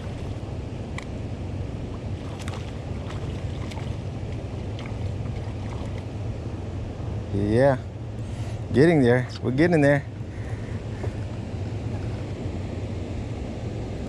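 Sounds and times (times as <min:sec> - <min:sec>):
wind and water rushing: 0:00.0 - 0:07.4
light ticks and splashes: 0:01.9 - 0:06.1.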